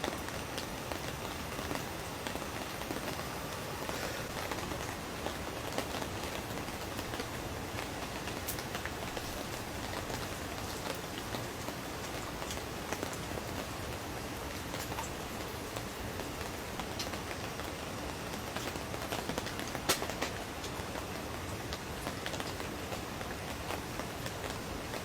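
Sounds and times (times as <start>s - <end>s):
rain hissing on a tent: 0.0s - 25.0s
sharp raindrop ticks: 0.0s - 25.0s.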